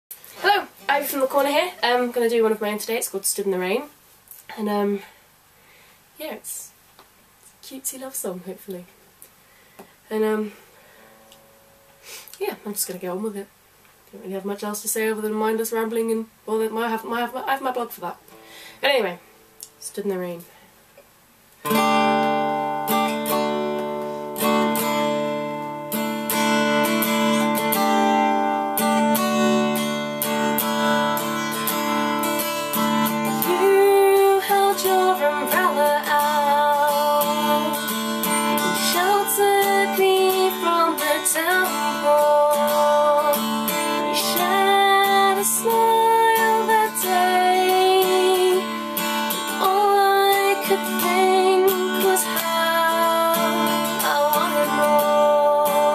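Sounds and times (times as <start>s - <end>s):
acoustic guitar strumming: 10.9s - 12.1s, 21.6s - 55.9s
person singing: 33.2s - 55.9s.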